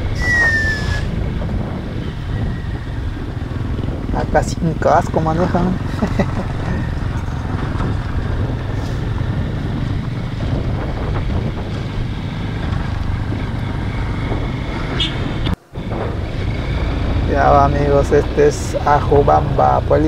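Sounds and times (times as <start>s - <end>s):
wind noise on microphone: 0.0s - 19.8s
motorcycle engine running: 0.0s - 20.0s.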